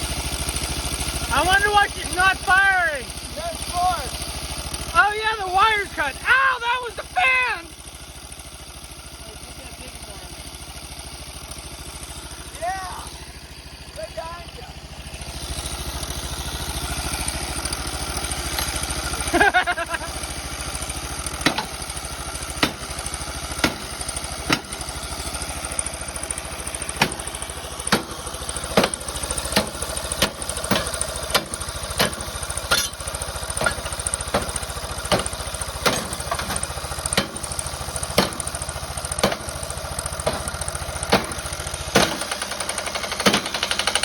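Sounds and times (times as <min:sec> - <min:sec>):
lawn mower engine running roughly: 0:00.0 - 0:44.0
sharp engine knock: 0:20.8 - 0:44.0.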